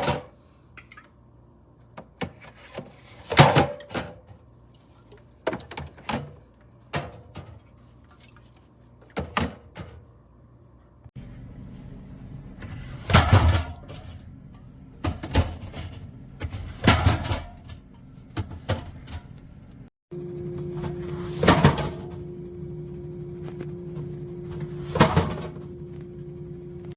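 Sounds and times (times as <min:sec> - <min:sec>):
steady hum: 0:11.2 - 0:26.9.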